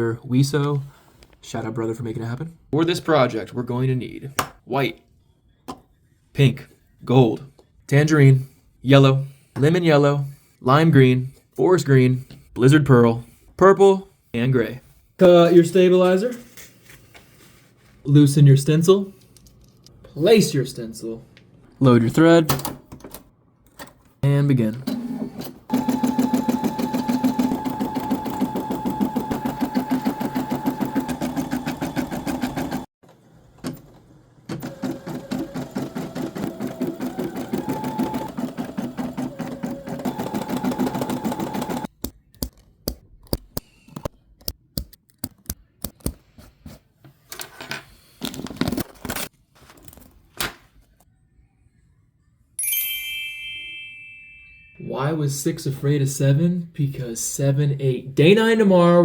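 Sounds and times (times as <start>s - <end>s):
embroidery machine stitching: 25.7s - 32.9s, 33.6s - 41.9s.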